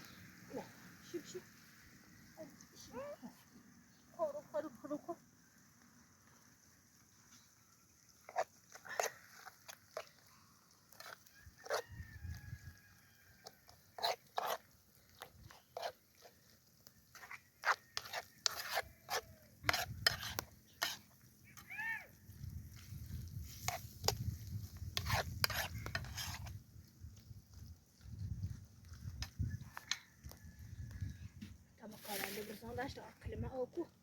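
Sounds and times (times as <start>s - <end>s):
utensil clinking and scraping pot: 7.3s - 21.8s, 22.7s - 26.6s.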